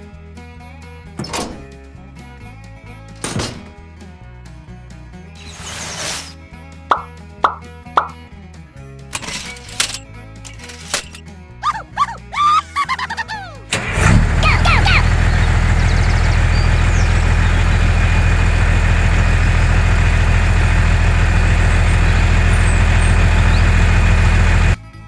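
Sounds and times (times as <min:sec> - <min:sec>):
small tractor engine running: 0:09.1 - 0:11.2, 0:13.0 - 0:24.8.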